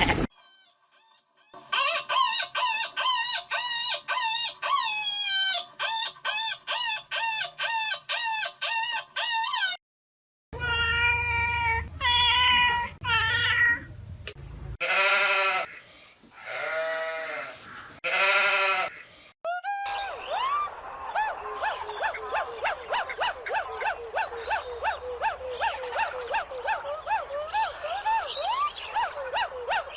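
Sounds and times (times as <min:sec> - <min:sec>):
goats or sheep bleating: 0:14.8 - 0:15.8, 0:16.4 - 0:19.0.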